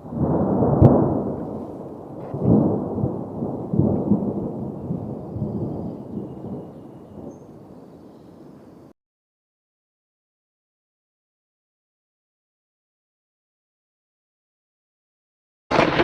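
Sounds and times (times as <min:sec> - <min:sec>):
thunder rumbling: 0:00.0 - 0:08.9, 0:15.7 - 0:16.0.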